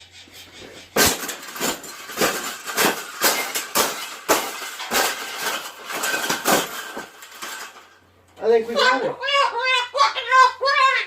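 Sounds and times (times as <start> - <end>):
metal wire cage rattling: 0.9 - 8.0.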